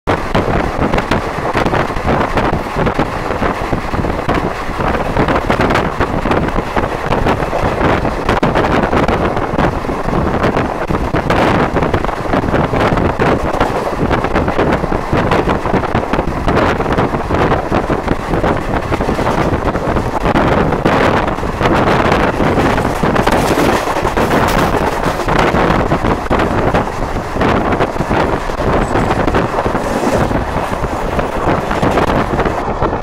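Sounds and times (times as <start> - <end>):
train running noise: 0.1 - 33.0
wind buffeting microphone: 0.1 - 33.0.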